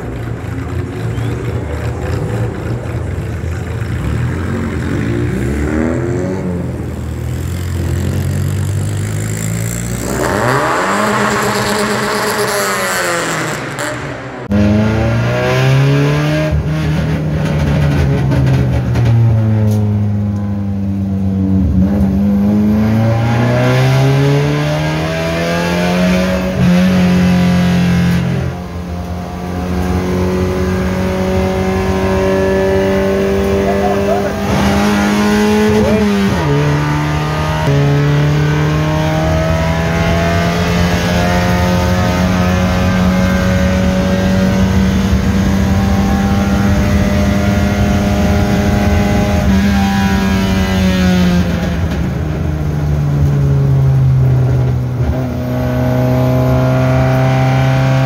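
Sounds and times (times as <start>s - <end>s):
car engine under hard acceleration: 0.0s - 58.0s
race cars revving and passing: 0.0s - 58.0s.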